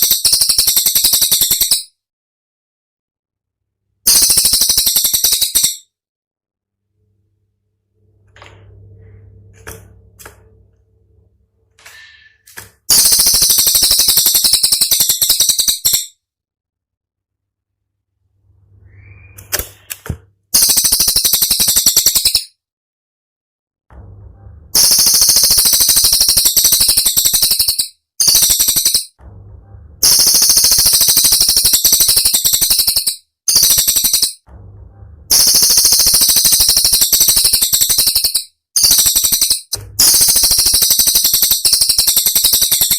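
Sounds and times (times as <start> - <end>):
bird rattling call: 0.0 - 1.8, 4.1 - 5.8, 12.9 - 16.1, 30.0 - 34.4, 35.3 - 42.9
low steady hum: 6.7 - 12.9, 23.9 - 24.8, 29.2 - 30.1, 34.5 - 35.4, 39.8 - 40.1
faint bird call notes: 18.8 - 19.9.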